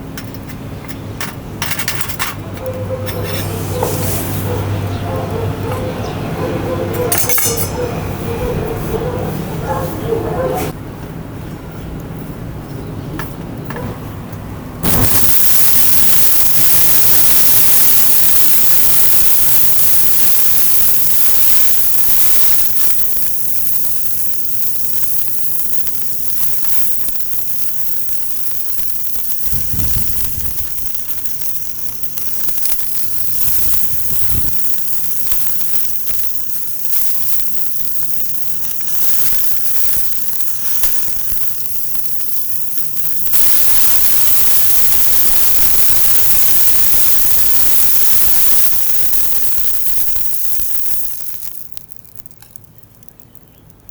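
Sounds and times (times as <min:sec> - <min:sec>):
wood fire crackling: 0:14.8 - 0:53.9.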